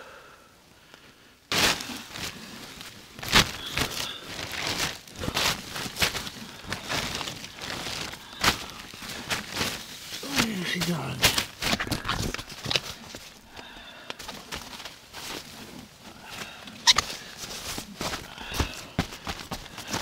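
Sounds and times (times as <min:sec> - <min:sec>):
crinkling rustles: 0:00.8 - 0:20.0
sharp cracks and knocks: 0:01.5 - 0:10.5.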